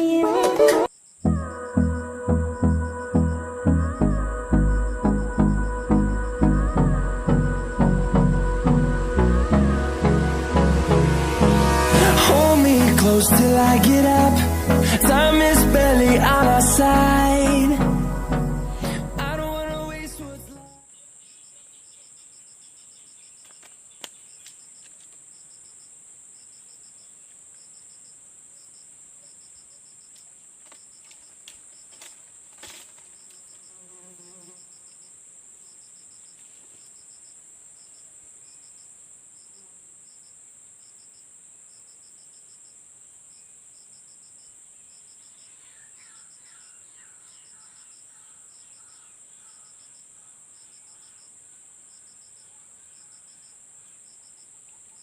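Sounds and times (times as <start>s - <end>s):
insects chirping drone: 0.8s - 20.0s
crickets pulsed trills: 0.8s - 55.0s.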